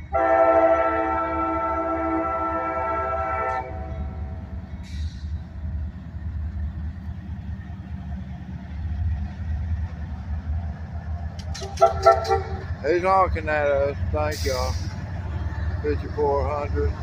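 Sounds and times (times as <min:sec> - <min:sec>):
diesel locomotive engine rumble: 0:00.0 - 0:17.0
brief hiss: 0:04.8 - 0:05.4.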